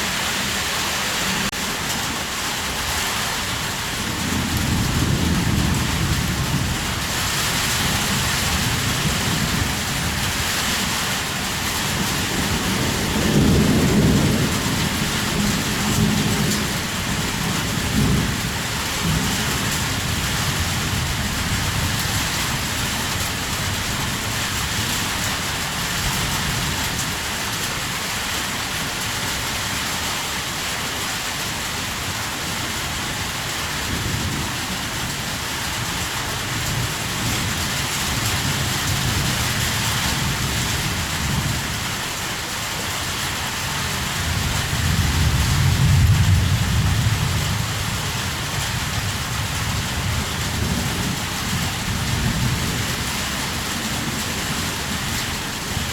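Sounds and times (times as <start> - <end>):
heavy rain falling: 0.0 - 55.9
thunder rumbling: 4.0 - 11.0, 11.6 - 25.7, 43.4 - 55.9.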